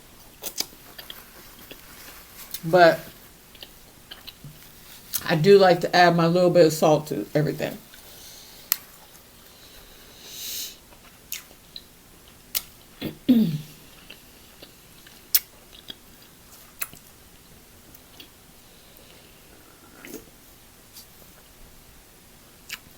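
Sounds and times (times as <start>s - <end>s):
mouth clicks and smacks of chewing: 0.4s - 1.8s, 10.9s - 11.9s, 12.5s - 12.9s, 14.0s - 16.0s, 22.7s - 22.9s.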